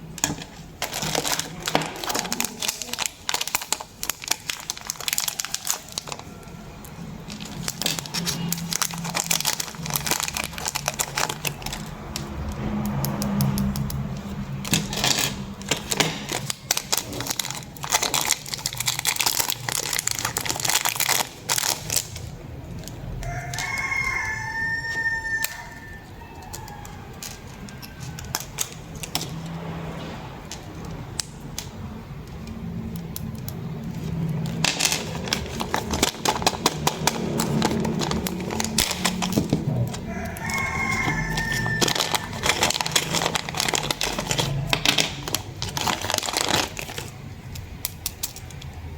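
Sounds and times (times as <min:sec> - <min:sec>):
plastic packaging crinkling: 0:00.0 - 0:48.9
rooster crowing: 0:05.2 - 0:07.6, 0:23.1 - 0:28.8, 0:37.2 - 0:44.7.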